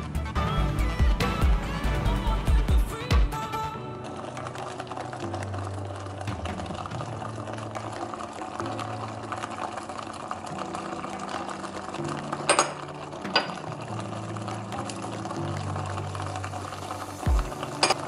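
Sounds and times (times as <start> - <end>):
background music with bass line: 0.0 - 3.9, 17.2 - 18.0
paste frying in oil: 4.0 - 18.0.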